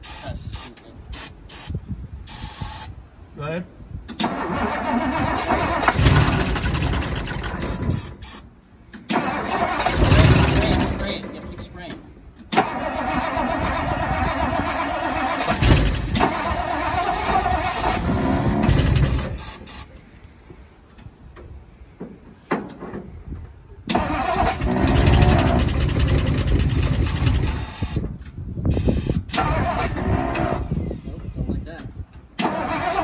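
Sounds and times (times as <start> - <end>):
car engine starting and stalling: 4.1 - 8.2, 9.0 - 11.7, 12.4 - 19.7, 23.9 - 28.0, 28.8 - 31.1, 32.4 - 33.0.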